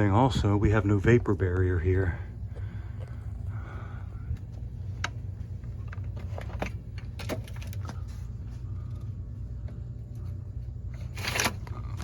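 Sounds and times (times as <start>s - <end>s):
steady low hum: 0.0s - 12.0s
rustles and clicks of handling gear: 4.3s - 12.0s.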